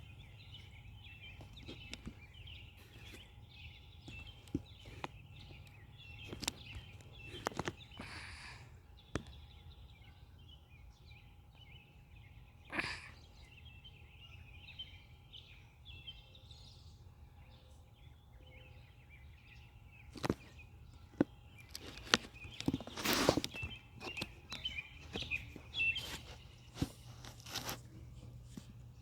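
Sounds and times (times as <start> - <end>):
small birds chirping: 0.0 - 29.0
short rustle: 21.6 - 28.8.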